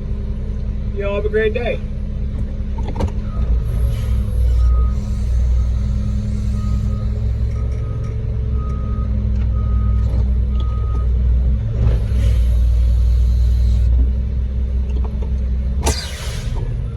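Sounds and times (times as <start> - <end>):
truck engine running: 0.0 - 16.9
backup alarm beeping: 3.4 - 10.0
air hiss: 3.6 - 7.6, 12.0 - 13.9, 15.9 - 16.7.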